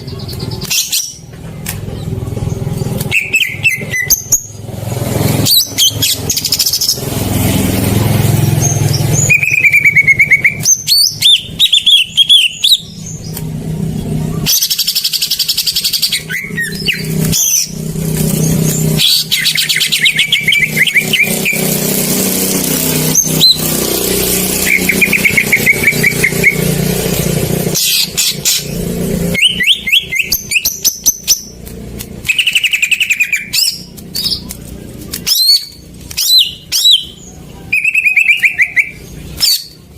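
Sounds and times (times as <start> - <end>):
bird chattering trills: 8.3 - 39.9.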